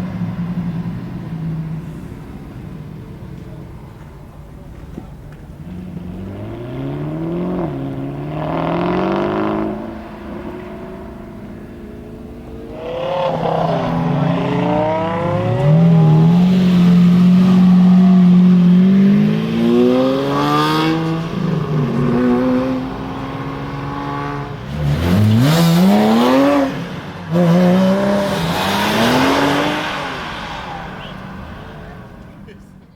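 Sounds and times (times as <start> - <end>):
car engines revving: 0.0 - 32.9.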